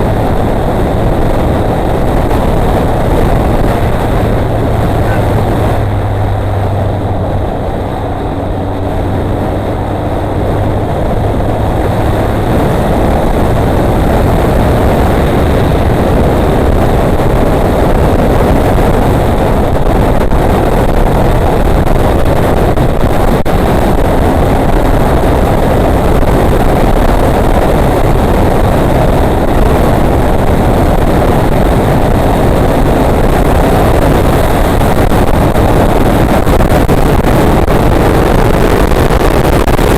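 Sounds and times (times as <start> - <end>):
motorcycle engine running: 0.0 - 39.9
wind on microphone: 0.0 - 39.9.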